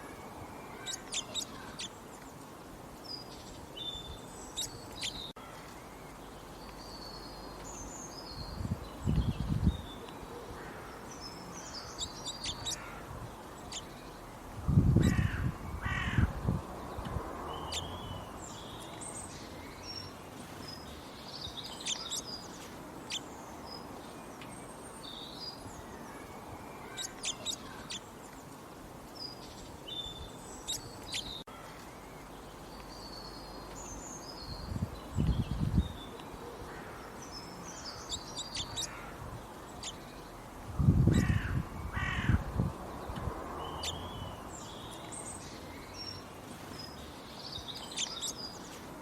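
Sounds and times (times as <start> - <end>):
birds chirping and calling: 0.0 - 2.3, 3.2 - 5.9, 6.5 - 14.2, 17.0 - 28.4, 29.2 - 42.4, 43.0 - 48.8
outdoor background hiss: 0.0 - 49.0.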